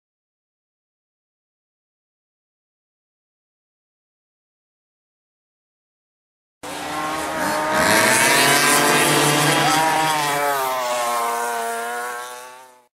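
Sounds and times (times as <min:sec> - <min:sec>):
go-kart engine revving: 0:06.6 - 0:12.9.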